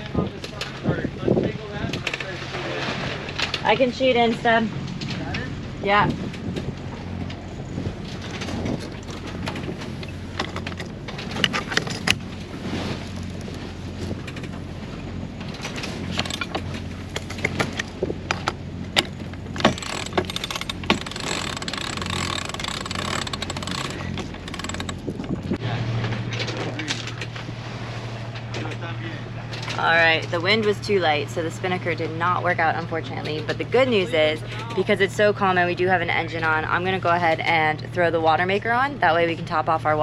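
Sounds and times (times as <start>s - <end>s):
boat engine droning: 0.0s - 40.0s
deck gear clicks and knocks: 8.2s - 12.2s, 15.6s - 25.6s.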